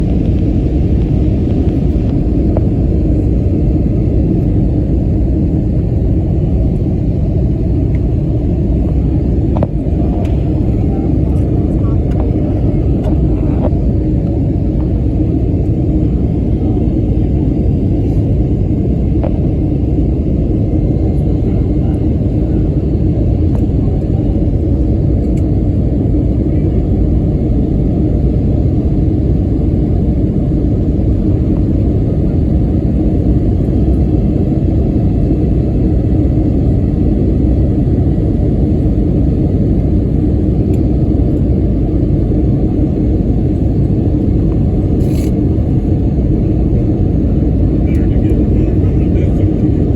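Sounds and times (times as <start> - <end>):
airliner cabin engine drone: 0.0 - 49.9.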